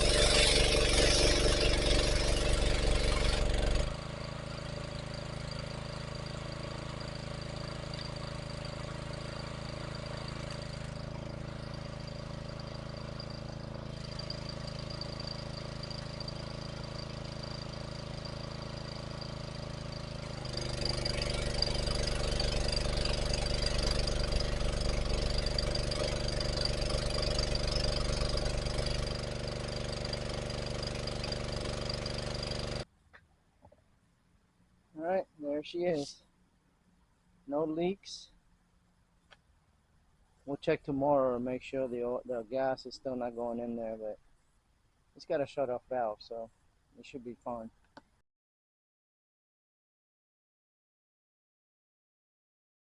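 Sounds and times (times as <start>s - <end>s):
small gas engine running: 0.0s - 32.9s.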